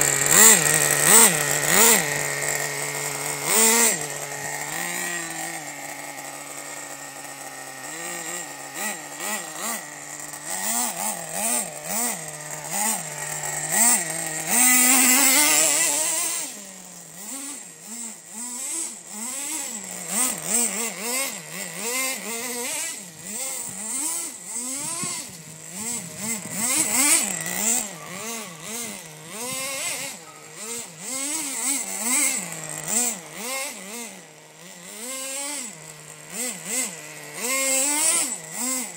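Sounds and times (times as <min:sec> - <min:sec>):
small two-stroke engine revving: 0:00.0 - 0:38.9.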